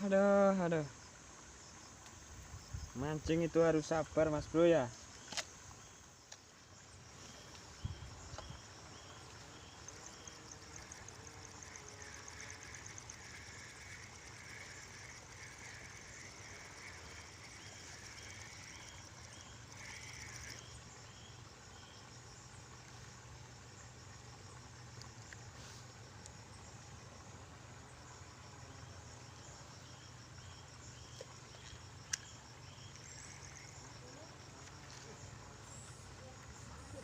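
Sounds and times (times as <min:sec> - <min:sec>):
insects chirping rhythmically: 0:00.0 - 0:37.0.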